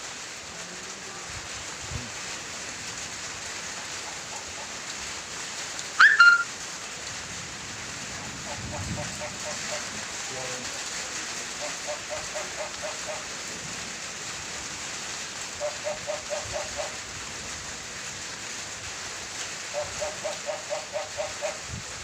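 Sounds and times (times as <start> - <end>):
animal repeated calls: 6.0 - 6.5, 11.6 - 13.3, 15.6 - 17.0, 19.8 - 21.6.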